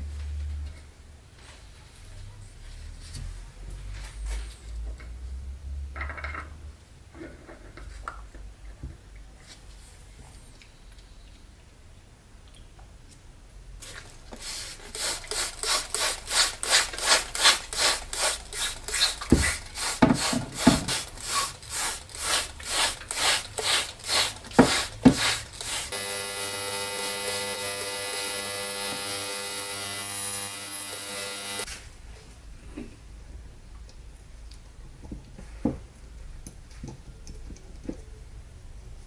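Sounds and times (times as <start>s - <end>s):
steady humming tone: 25.9s - 31.7s.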